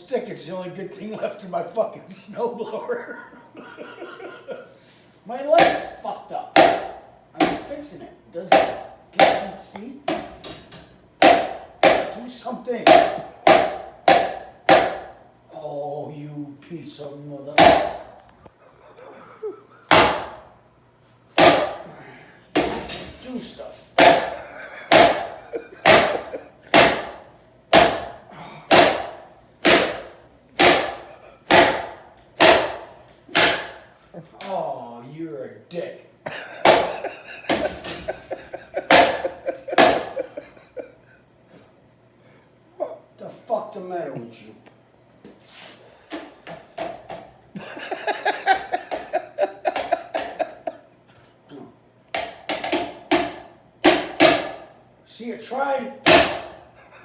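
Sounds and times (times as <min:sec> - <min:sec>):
stick knocking hard: 0:05.5 - 0:06.0, 0:06.6 - 0:07.8, 0:08.5 - 0:10.4, 0:11.2 - 0:12.2, 0:12.8 - 0:15.1, 0:17.6 - 0:18.1, 0:19.9 - 0:20.4, 0:21.4 - 0:21.8, 0:22.6 - 0:23.1, 0:24.0 - 0:33.8, 0:36.6 - 0:40.2, 0:48.5 - 0:50.5, 0:52.1 - 0:54.6, 0:56.0 - 0:56.6.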